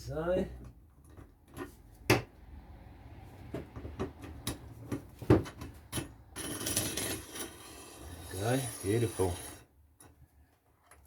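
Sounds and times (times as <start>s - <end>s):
workbench parts knocking and clicking: 3.4s - 7.4s.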